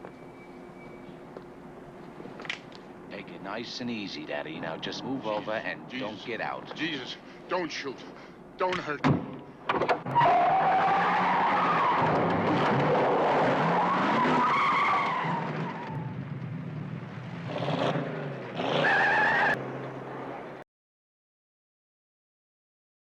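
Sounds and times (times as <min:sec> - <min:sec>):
car tyres squealing: 0:10.0 - 0:16.4, 0:17.4 - 0:19.6.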